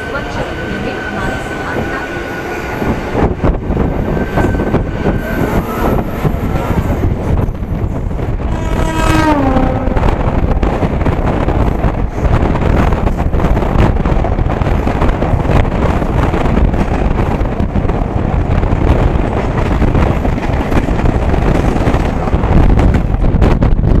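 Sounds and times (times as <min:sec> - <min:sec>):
train wheels rumbling on rails: 0:00.0 - 0:24.0
wind on microphone: 0:00.0 - 0:24.0.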